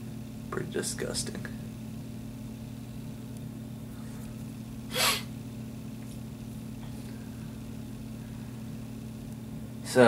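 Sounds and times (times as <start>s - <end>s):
steady low hum: 0.0s - 10.0s
person breathing out: 4.9s - 5.3s.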